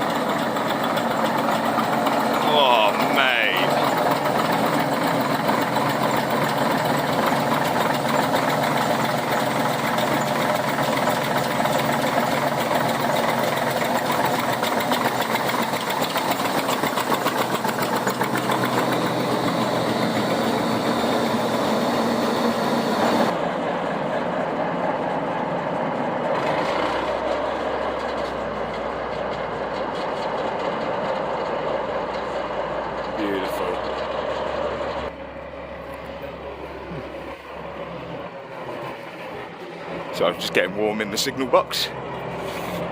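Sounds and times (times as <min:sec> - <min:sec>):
diesel locomotive engine idling: 0:00.0 - 0:42.9
low hum: 0:32.2 - 0:40.2.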